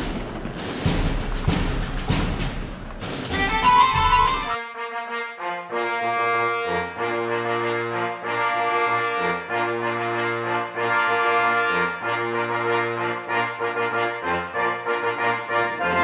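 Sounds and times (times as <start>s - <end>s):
brass playing slow chords: 3.4s - 16.0s.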